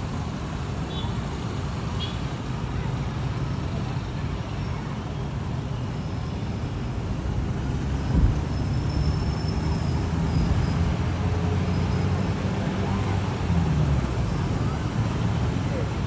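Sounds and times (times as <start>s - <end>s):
vehicle engines running: 6.7s - 16.0s.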